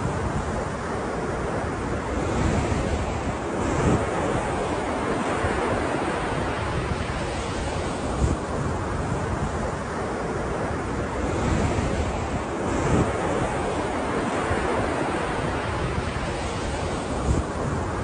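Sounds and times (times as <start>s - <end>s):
wind noise on microphone: 0.0s - 18.0s.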